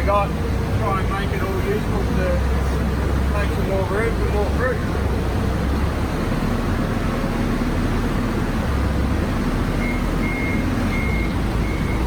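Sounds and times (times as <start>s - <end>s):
vehicle engine rumbling: 0.0s - 12.0s
reversing alarm beeps: 9.8s - 12.0s.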